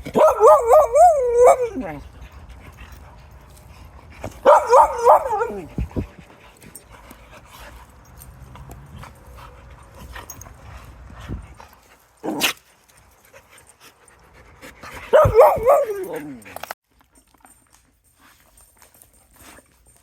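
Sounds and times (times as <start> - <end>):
dog whining: 4.4 - 5.9, 15.1 - 16.7.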